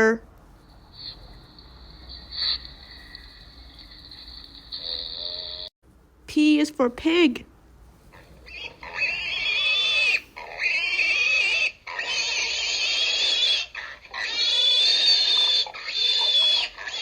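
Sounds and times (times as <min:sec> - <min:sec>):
pig squealing: 0:02.1 - 0:02.9, 0:08.1 - 0:17.0.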